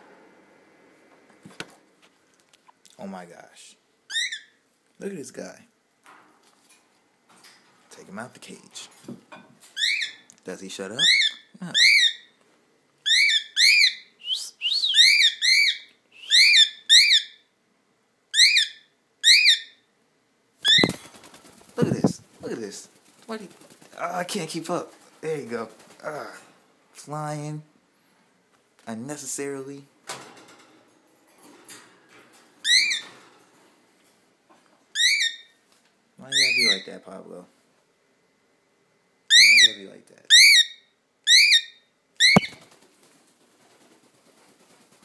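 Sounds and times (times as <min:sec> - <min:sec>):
cockatiel calling shrilly: 0:04.1 - 0:04.6, 0:11.0 - 0:12.3, 0:13.0 - 0:17.4, 0:18.3 - 0:19.8, 0:35.0 - 0:35.5, 0:39.3 - 0:39.7, 0:40.3 - 0:42.6.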